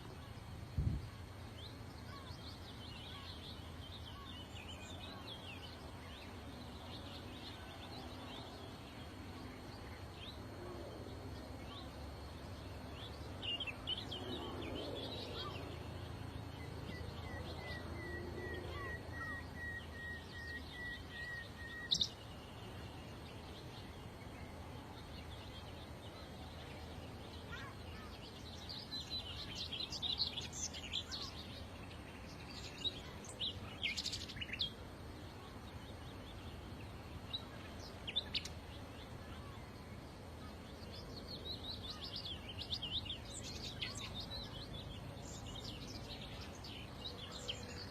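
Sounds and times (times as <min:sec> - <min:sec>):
low background hum: 0:00.0 - 0:47.9
small birds chirping: 0:00.0 - 0:47.9
bird trill: 0:16.9 - 0:22.3.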